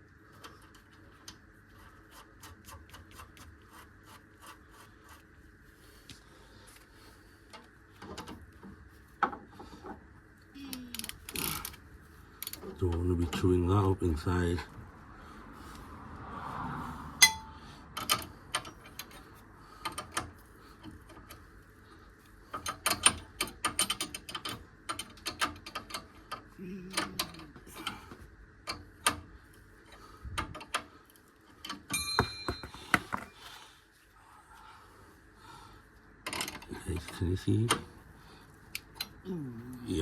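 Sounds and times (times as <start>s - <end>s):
ringing metal clink: 17.2s - 17.5s, 31.9s - 33.0s
spanner clicking on a nut: 17.2s - 19.2s, 22.5s - 28.0s.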